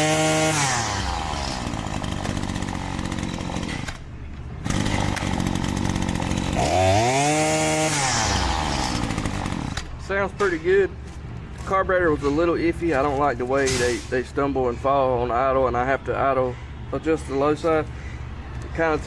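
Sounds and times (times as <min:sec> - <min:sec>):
string trimmer engine idling and revving: 0:00.0 - 0:04.0, 0:04.6 - 0:09.9.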